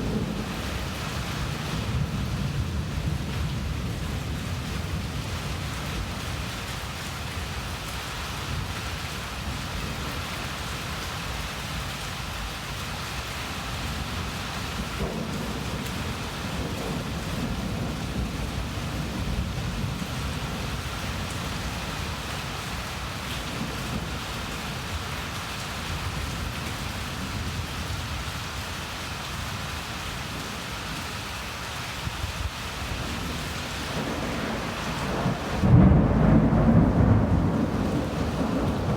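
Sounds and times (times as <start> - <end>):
low rolling thunder: 0.0 - 6.5, 14.0 - 25.0, 32.3 - 38.9
heavy rain falling: 0.0 - 38.9.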